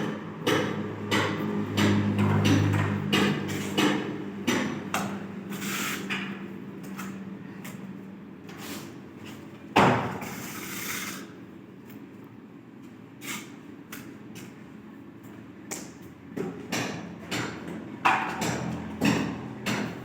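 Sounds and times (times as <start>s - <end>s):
scraping and sliding: 5.5s - 6.3s.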